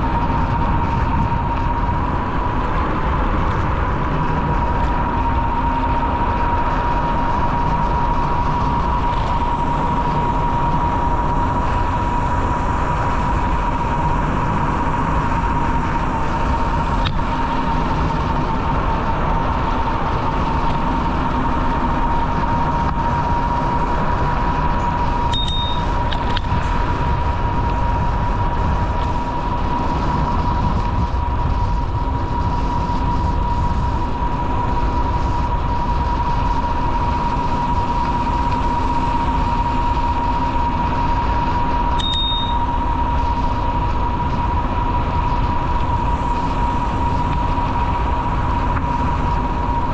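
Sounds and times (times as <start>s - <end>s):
bicycle rumbling along trail: 0.0s - 49.9s
constant whine: 0.0s - 49.9s
short high ring: 25.3s - 26.1s, 42.0s - 42.8s.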